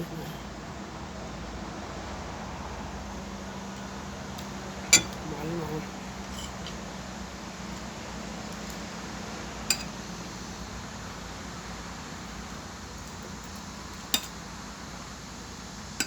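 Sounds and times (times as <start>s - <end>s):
cutlery clinking on plate: 4.9s - 5.2s, 6.3s - 6.8s, 9.7s - 10.0s, 14.2s - 14.4s.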